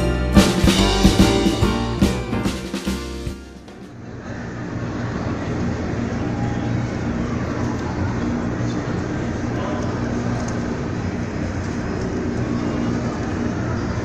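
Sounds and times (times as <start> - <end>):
road noise: 3.6 - 14.0
vehicle engine hum: 3.9 - 14.0.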